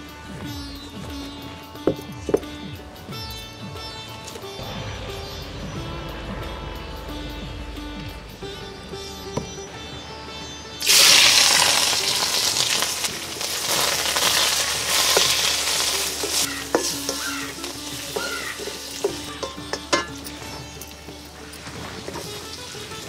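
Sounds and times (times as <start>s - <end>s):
loud sizzle of frying: 10.8s - 23.0s.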